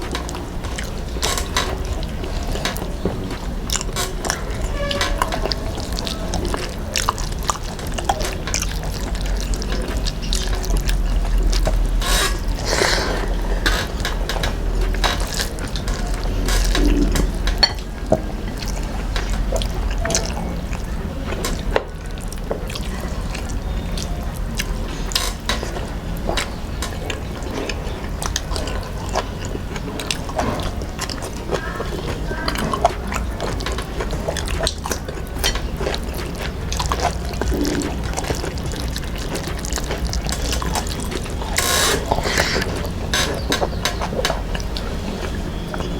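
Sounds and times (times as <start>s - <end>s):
person chewing and smacking: 0.0s - 45.9s
small mouth clicks: 32.5s - 44.8s.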